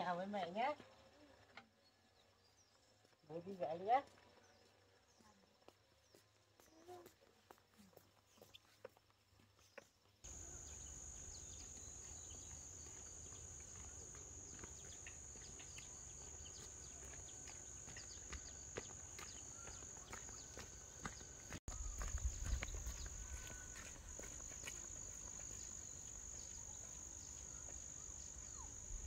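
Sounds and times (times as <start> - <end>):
insects buzzing: 10.3 - 29.0.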